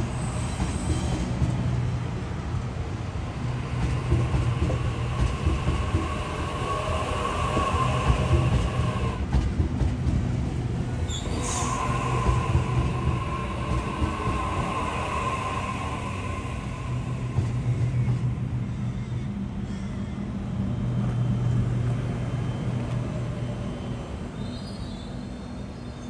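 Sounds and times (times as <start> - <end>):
train wheels rumbling on rails: 0.0 - 26.0
train whine: 0.0 - 26.0
high squeals: 11.1 - 17.2.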